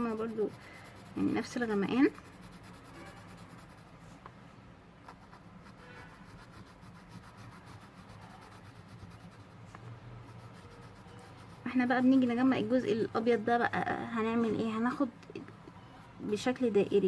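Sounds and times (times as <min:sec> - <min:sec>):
pencil scratching on paper: 0:00.0 - 0:04.2, 0:05.0 - 0:13.0.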